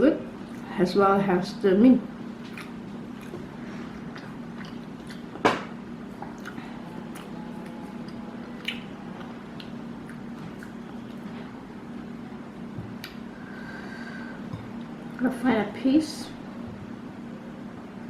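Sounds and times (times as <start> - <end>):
low steady hum: 0.0 - 18.0
soft chewing: 2.4 - 5.4, 6.1 - 11.6.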